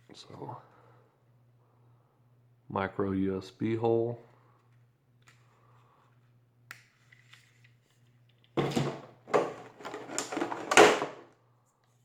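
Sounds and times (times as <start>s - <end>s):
packaging rustling: 9.4s - 11.1s.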